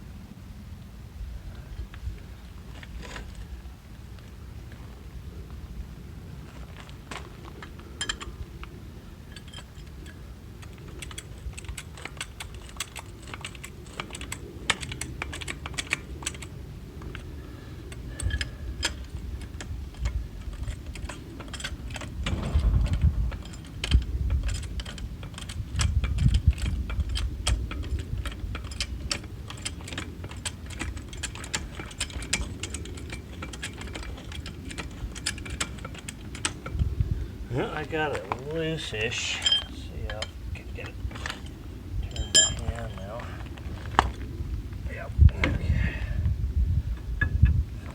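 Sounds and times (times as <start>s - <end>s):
metal tools clattering: 7.8s - 8.4s, 18.1s - 36.9s, 37.6s - 44.2s
heavy low thumps: 22.2s - 25.3s.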